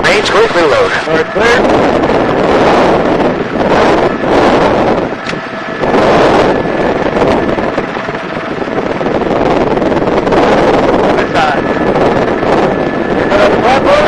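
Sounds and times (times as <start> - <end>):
helicopter engine tones: 0.0 - 14.0
wind buffeting microphone: 0.0 - 14.0.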